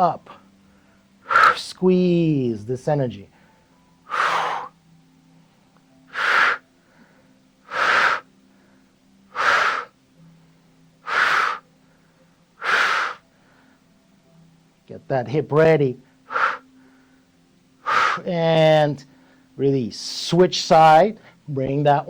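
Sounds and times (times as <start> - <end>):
person breathing forcefully: 0.7 - 1.6, 3.4 - 4.8, 6.1 - 10.0, 11.0 - 13.8, 16.1 - 17.2, 17.8 - 18.3.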